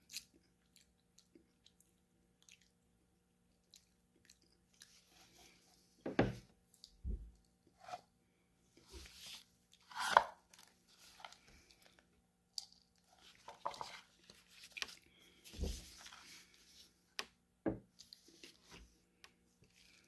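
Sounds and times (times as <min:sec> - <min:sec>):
crunchy food chewing: 0:00.0 - 0:02.8.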